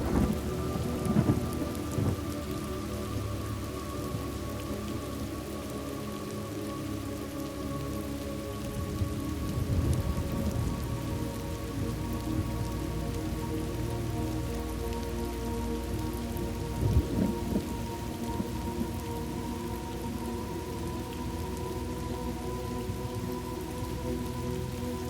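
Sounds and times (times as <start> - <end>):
thunder rolling: 0.0 - 2.2
steady rain: 0.0 - 25.0.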